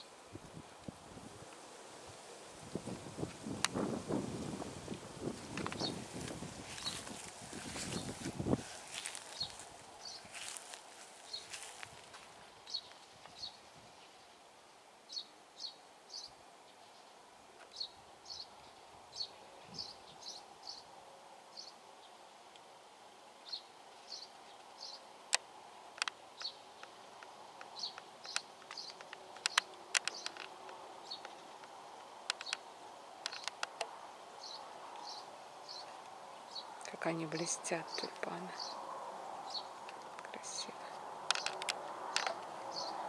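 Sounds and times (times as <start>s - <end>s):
low outdoor hiss: 0.0s - 43.0s
small birds chirping: 3.6s - 14.4s, 15.1s - 20.9s, 21.5s - 22.2s, 23.4s - 25.1s, 25.9s - 43.0s
sharp clicks: 27.2s - 31.7s, 32.3s - 32.6s, 33.3s - 33.9s, 41.3s - 42.5s.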